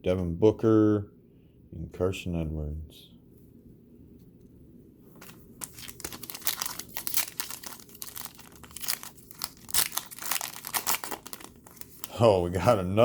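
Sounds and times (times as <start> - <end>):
plastic wrapper tearing and crinkling: 5.2 - 12.3.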